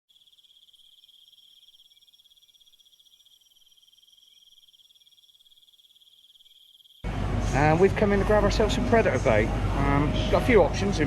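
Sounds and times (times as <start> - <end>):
insects chirping: 0.0 - 7.2.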